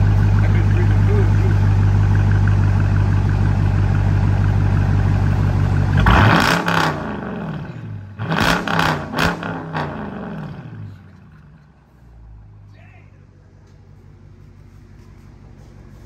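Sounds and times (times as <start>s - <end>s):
car engine revving: 0.0s - 11.7s.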